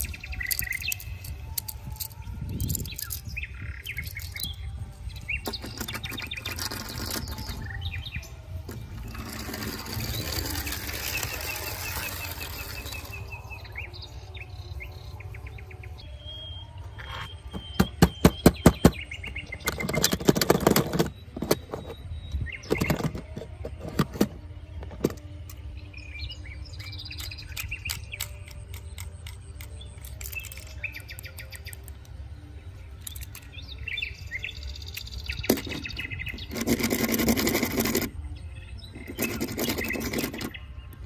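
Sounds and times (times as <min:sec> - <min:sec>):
birds chirping: 0:00.0 - 0:41.0
sharp clicks and knocks: 0:17.5 - 0:22.0.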